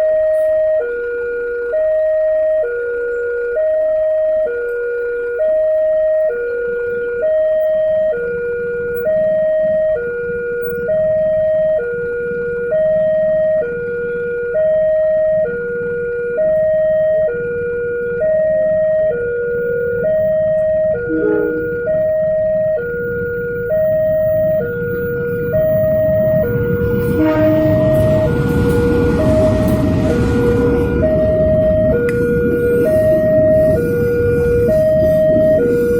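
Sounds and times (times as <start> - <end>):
level crossing alarm two-tone: 18.2 - 35.9
low rumble: 21.0 - 35.9.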